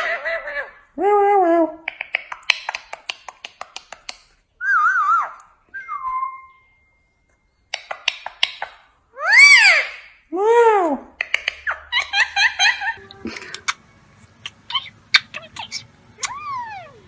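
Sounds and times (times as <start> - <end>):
parrot clicks: 1.8 - 4.3, 7.7 - 8.9, 11.2 - 11.8
parrot calling and whistling: 4.6 - 6.9, 7.8 - 10.2, 11.3 - 17.0.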